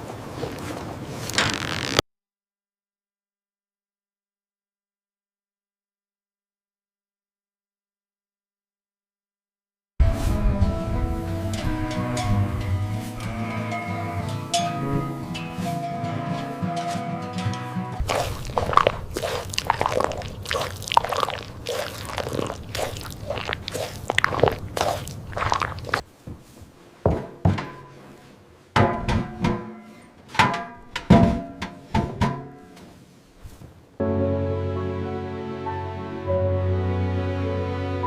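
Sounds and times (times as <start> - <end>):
irregular knocks and crunches: 0.3 - 2.0, 18.0 - 26.5.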